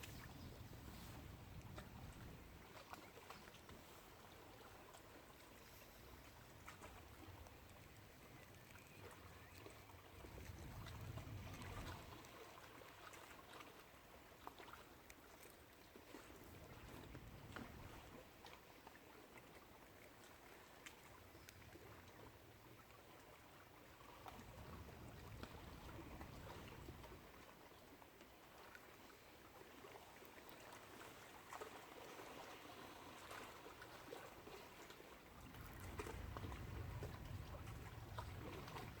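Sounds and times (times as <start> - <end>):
water lapping: 0.0 - 39.0
small ticks and trickles: 1.5 - 39.0
light ticks: 20.8 - 21.6.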